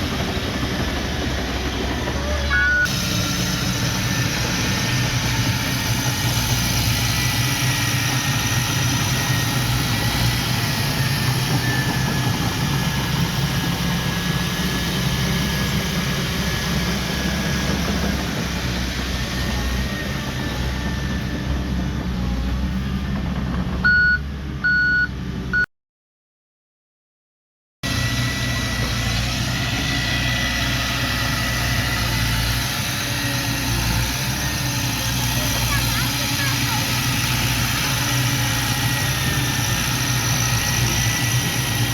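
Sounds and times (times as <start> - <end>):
diesel machinery running: 0.0 - 25.6, 27.8 - 41.9
reversing alarm beeping: 2.4 - 3.0, 23.8 - 25.7.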